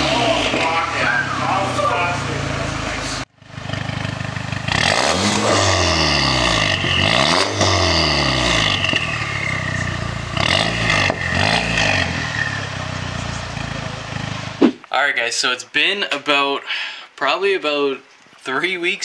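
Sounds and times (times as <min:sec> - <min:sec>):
car engine revving: 0:00.0 - 0:14.8.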